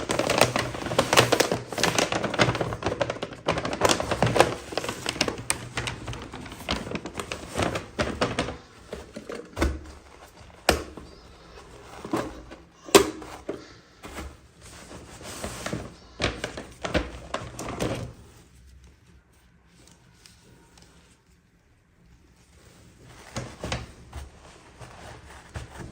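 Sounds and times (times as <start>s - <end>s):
packaging rustling: 0.0s - 21.5s.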